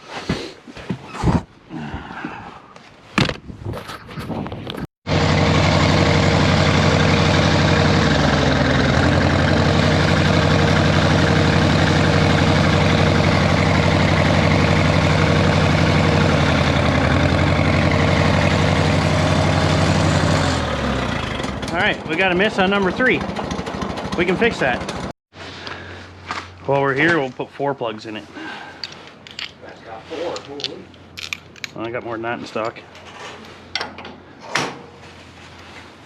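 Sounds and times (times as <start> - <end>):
tractor engine running unevenly: 5.1 - 25.1
hand tool clicks and knocks: 28.8 - 29.6.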